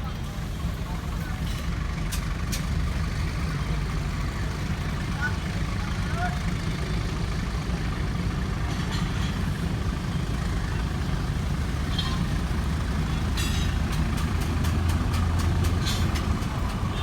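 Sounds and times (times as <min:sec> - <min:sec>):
diesel locomotive rumbling: 0:00.0 - 0:17.0.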